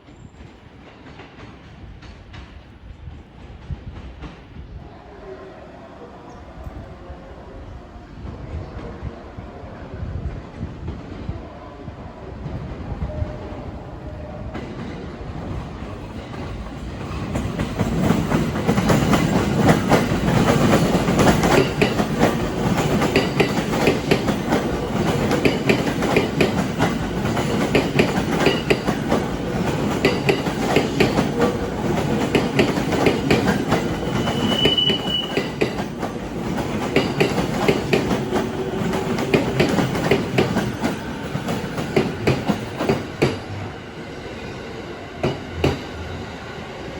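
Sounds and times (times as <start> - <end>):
train low rumble: 0.0 - 46.9
train wheels clacking over rail joints: 14.6 - 43.5
high squeal: 33.8 - 35.6.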